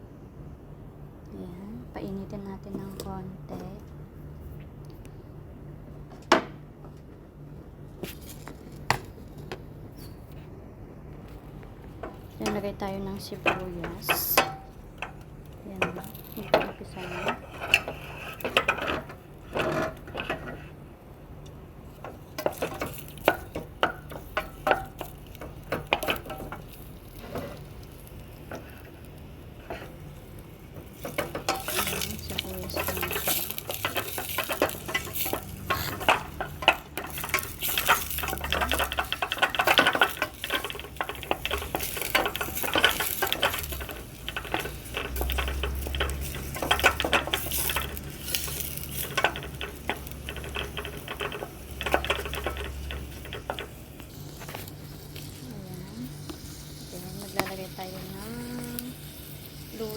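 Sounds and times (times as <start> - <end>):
onions sizzling in oil: 11.9 - 20.7, 21.8 - 59.9
utensil scraping a pan: 15.8 - 20.8, 28.5 - 53.8.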